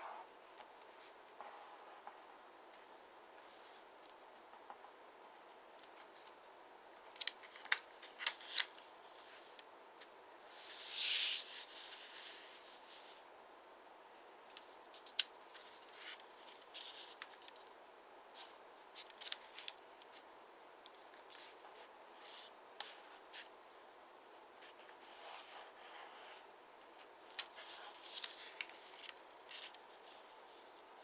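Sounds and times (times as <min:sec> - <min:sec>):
paper rustling: 0:07.0 - 0:10.1, 0:18.4 - 0:20.2, 0:27.3 - 0:30.3.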